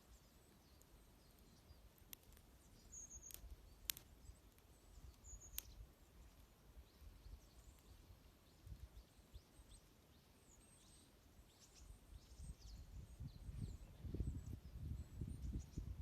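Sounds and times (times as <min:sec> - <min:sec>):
wood fire crackling: 0:00.0 - 0:13.0
small birds chirping: 0:00.0 - 0:16.0
sharp pops from fire: 0:00.8 - 0:08.0.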